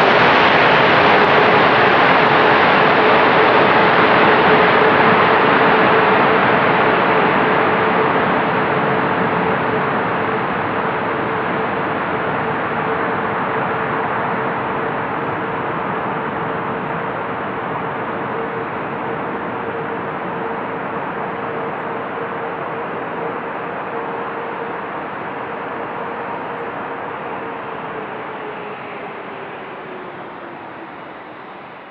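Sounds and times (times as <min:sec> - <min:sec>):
jet engine rush with hum: 0:00.0 - 0:31.9.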